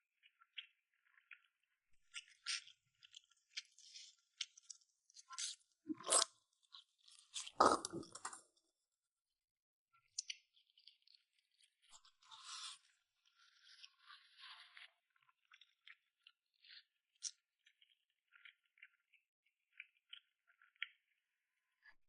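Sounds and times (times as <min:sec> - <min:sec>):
person chewing and smacking: 0:04.4 - 0:06.3, 0:07.0 - 0:08.4.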